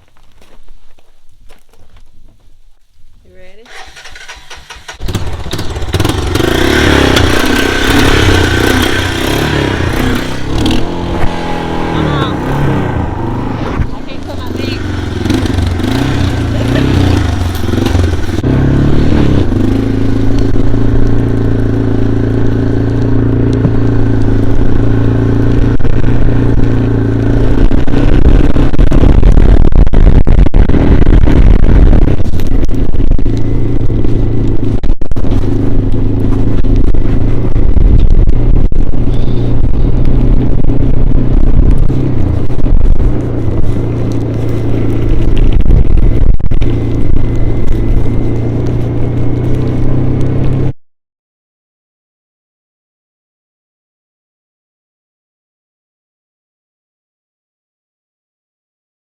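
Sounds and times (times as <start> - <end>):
heavy low rumble: 3.2 - 50.8
atv engine running: 3.6 - 50.8.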